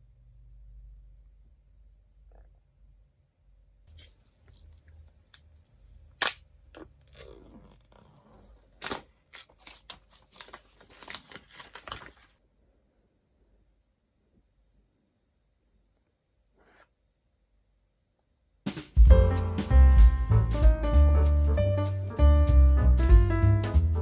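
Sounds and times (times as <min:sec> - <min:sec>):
paper and cardboard crinkling: 0:07.0 - 0:12.4.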